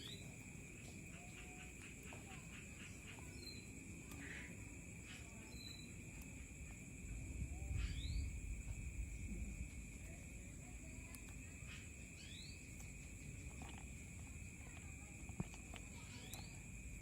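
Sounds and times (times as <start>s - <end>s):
bird chirps: 0.0s - 0.4s, 1.1s - 6.0s, 7.7s - 8.4s, 11.6s - 13.3s
high insect-like hum: 0.0s - 17.0s.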